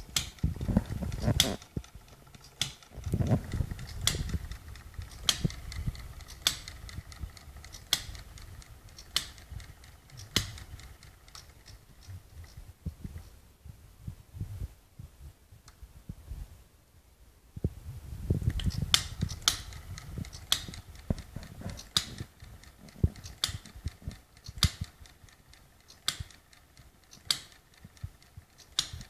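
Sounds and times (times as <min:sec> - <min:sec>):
model engine cracking: 0:00.0 - 0:12.6, 0:18.5 - 0:29.0
irregular clicking: 0:00.0 - 0:13.3, 0:18.4 - 0:29.0.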